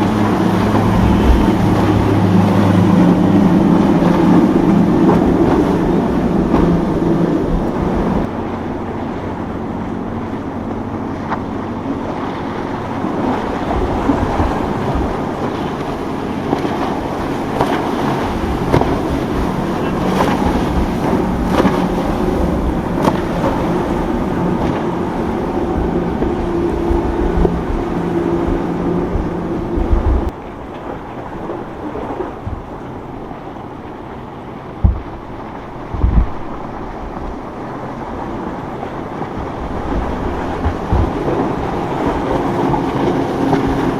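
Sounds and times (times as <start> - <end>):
boat engines droning: 0.0 - 43.9
rushing water: 0.0 - 43.9
wind buffeting microphone: 0.0 - 43.9
sharp knocks: 34.8 - 35.2, 35.9 - 36.6.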